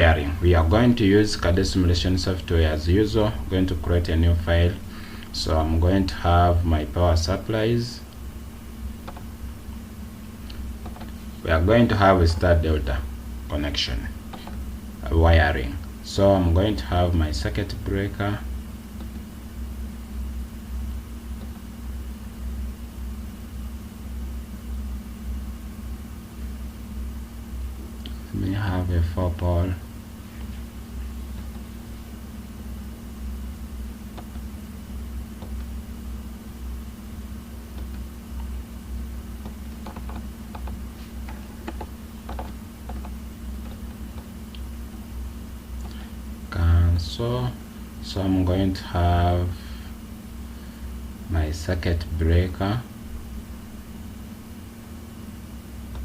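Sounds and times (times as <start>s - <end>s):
steady low hum: 0.0s - 56.0s
computer mouse and keyboard clicks: 9.0s - 9.3s, 10.8s - 11.2s, 14.3s - 14.6s, 39.4s - 44.3s.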